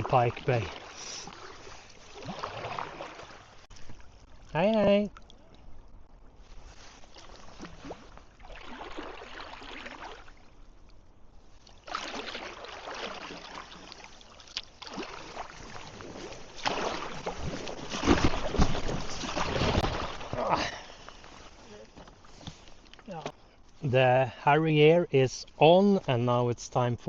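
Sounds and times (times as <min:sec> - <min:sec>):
paddle splashing through water: 0:00.0 - 0:04.4, 0:06.5 - 0:10.6, 0:11.6 - 0:22.8.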